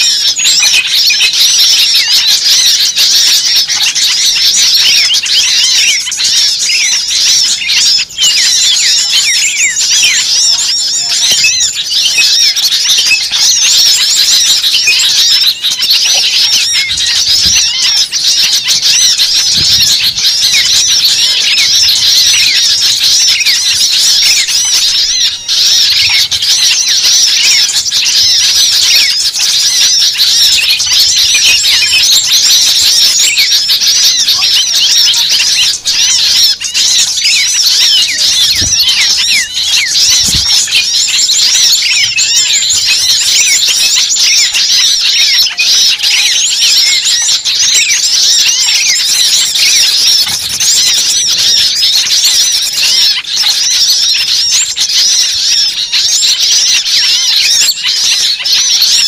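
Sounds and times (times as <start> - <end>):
flock of birds chirping: 0.0 - 59.0.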